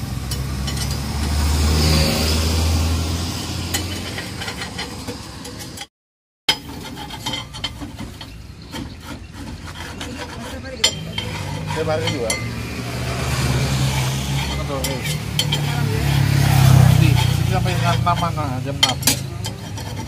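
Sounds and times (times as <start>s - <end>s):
vehicle engine passing: 0.0s - 5.8s, 11.0s - 20.0s
metal spatula scraping griddle: 3.3s - 5.9s, 6.5s - 20.0s.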